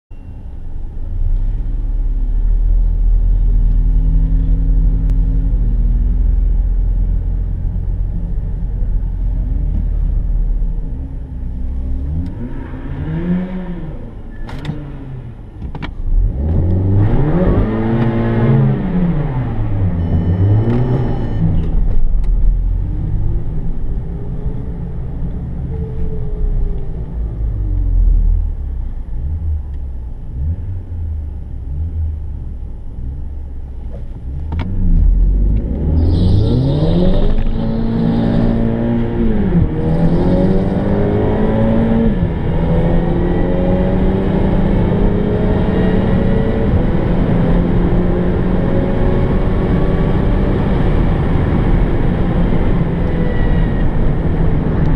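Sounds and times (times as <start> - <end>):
car engine revving: 2.2 - 54.9
car accelerating through gears: 16.2 - 21.8, 34.6 - 54.9.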